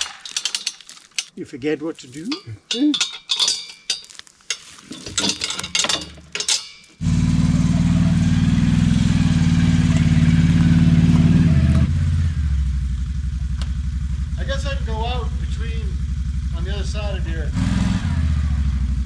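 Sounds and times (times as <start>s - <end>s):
handling clicks and knocks: 0.0s - 7.0s
engine starting and running: 7.0s - 19.0s.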